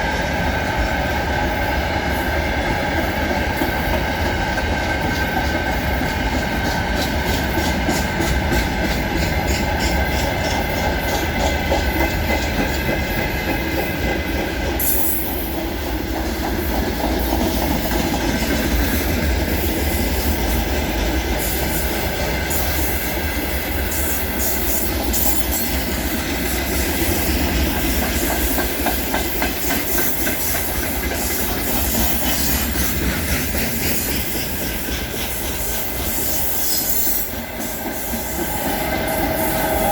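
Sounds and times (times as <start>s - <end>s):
steel wheels clacking over rail joints: 0.0s - 39.9s
wheel squeal: 36.2s - 37.4s.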